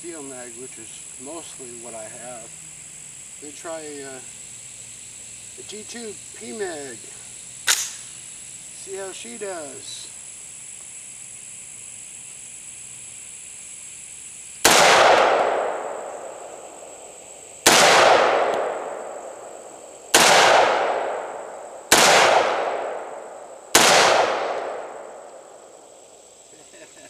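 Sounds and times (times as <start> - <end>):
pistol shots echoing: 7.7 - 8.1, 14.6 - 26.0.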